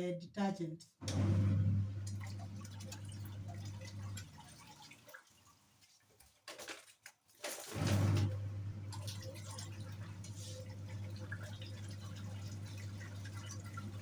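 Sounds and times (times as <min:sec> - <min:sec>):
washing machine motor humming: 0:01.0 - 0:05.1, 0:07.7 - 0:14.0
water sloshing and dripping: 0:01.0 - 0:14.0.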